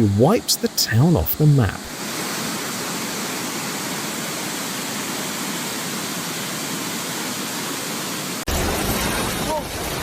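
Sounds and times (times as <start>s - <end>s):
floodwater rushing: 0.0s - 10.0s.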